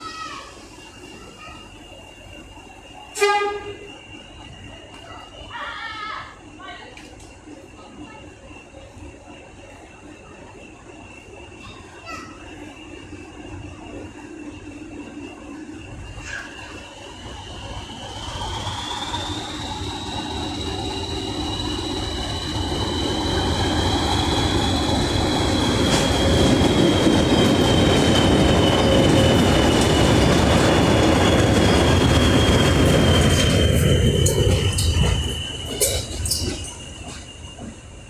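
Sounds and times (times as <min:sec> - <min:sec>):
diesel locomotive engines: 0:00.0 - 0:38.0
high whistling tone: 0:16.7 - 0:38.0.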